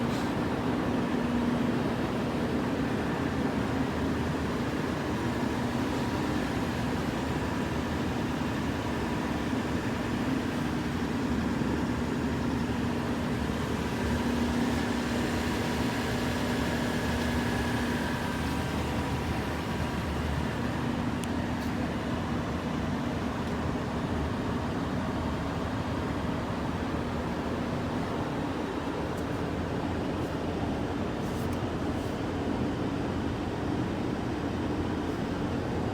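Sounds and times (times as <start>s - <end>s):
mechanical hum with whine: 0.0s - 35.9s.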